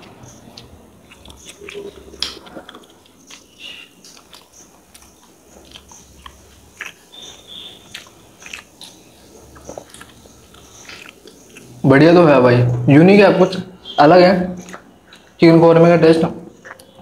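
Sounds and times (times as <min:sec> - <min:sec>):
chewing: 0:00.0 - 0:11.8, 0:14.6 - 0:15.4, 0:16.5 - 0:17.0
mouth clicks and smacks: 0:00.0 - 0:11.8, 0:14.5 - 0:15.4, 0:16.5 - 0:17.0.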